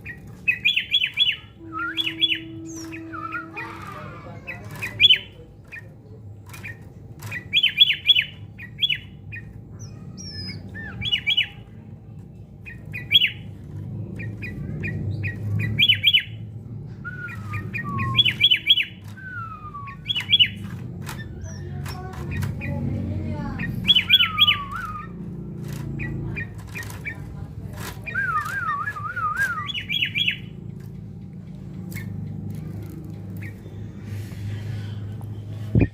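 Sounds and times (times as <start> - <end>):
falling whistled notes: 1.2 - 3.8.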